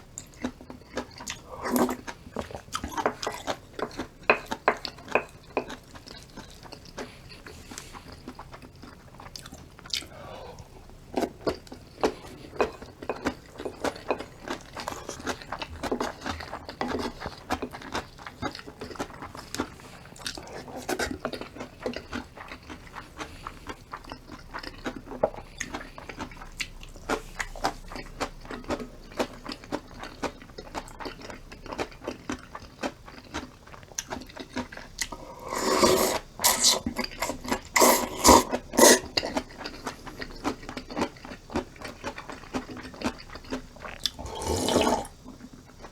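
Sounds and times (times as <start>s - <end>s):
person chewing crunchy food: 0.0s - 45.9s.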